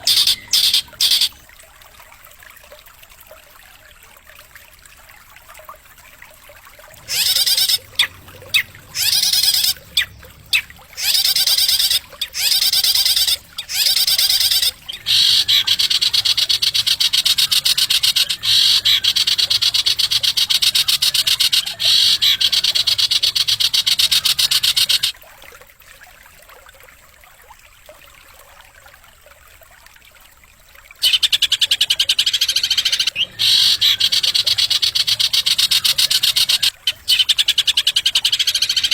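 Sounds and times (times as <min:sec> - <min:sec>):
recorded songbird trilling: 0:00.0 - 0:01.4, 0:07.0 - 0:25.1, 0:31.0 - 0:38.9.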